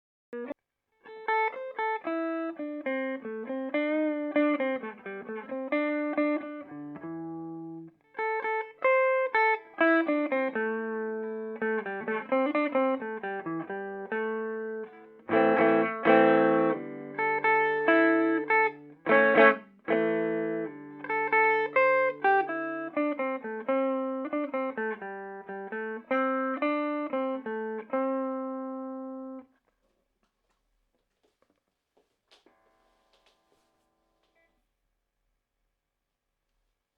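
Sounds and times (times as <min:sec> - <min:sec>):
clean electric guitar playing: 0:00.4 - 0:29.5.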